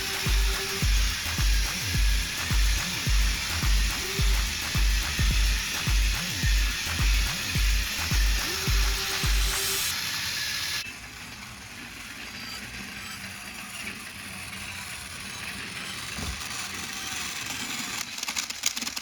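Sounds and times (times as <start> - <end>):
hiss: 0.0 - 10.8
toy train motor whir: 0.0 - 19.0.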